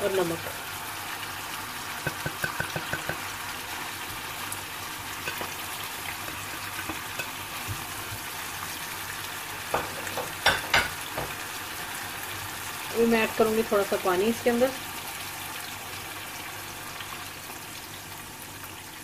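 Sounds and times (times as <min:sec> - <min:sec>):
food sizzling in a frying pan: 0:00.0 - 0:19.0
metal spoon knocking pan: 0:02.0 - 0:03.3.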